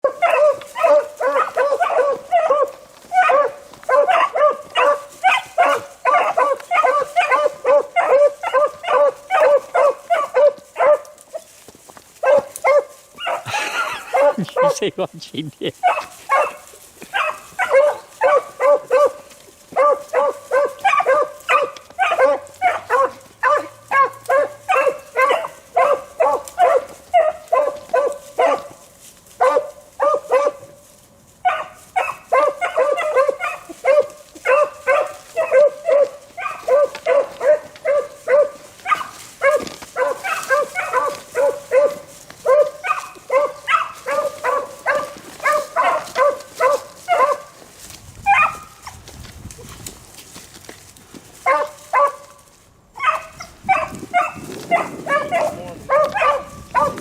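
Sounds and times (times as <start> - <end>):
beagles baying: 0.0 - 11.6, 12.2 - 15.0, 15.6 - 49.1, 51.3 - 57.0.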